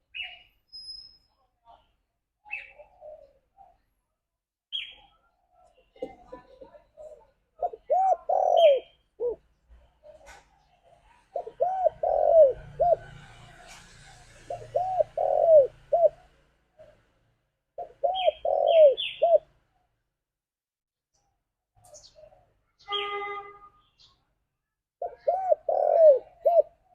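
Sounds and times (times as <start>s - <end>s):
short high bird chirps: 0.1s - 1.4s
dove cooing: 2.5s - 3.8s, 6.0s - 17.0s, 17.8s - 19.5s, 25.0s - 26.9s.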